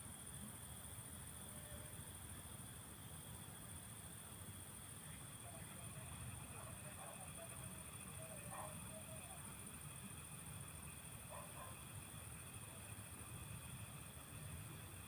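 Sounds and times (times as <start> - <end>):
insects and frogs chorus: 5.1 - 13.1.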